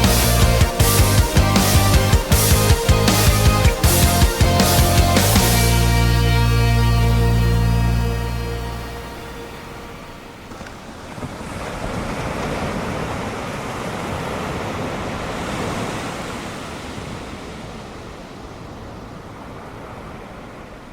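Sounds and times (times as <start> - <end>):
ocean wave breaking and washing in: 4.7 - 20.9.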